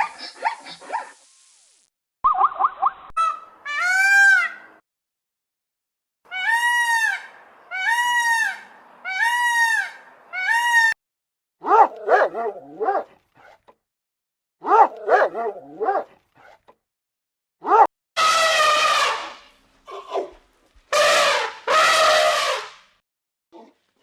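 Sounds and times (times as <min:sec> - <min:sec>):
high-pitched animal cries: 0:03.2 - 0:04.6, 0:06.3 - 0:11.0
short animal yips: 0:13.4 - 0:13.7.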